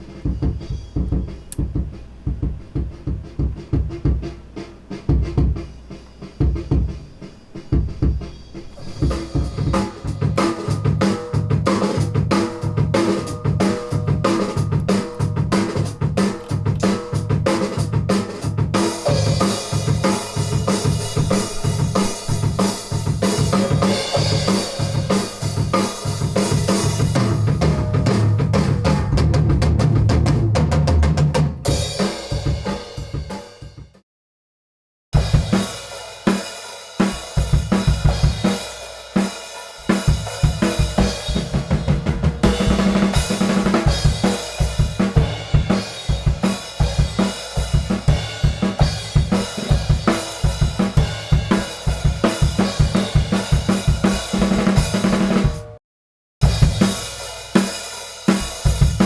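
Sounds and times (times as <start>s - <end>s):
hi-hat and snare strokes: 0.0s - 27.8s, 35.2s - 55.8s, 56.4s - 59.0s
kick drum: 0.3s - 4.4s, 5.1s - 5.7s.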